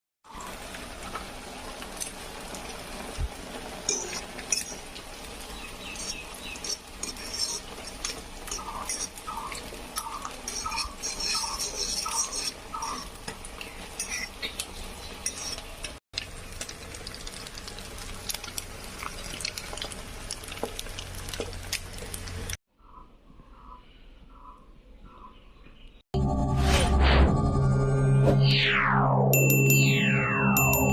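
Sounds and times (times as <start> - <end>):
metal utensils clinking on dishes: 3.8 - 5.0.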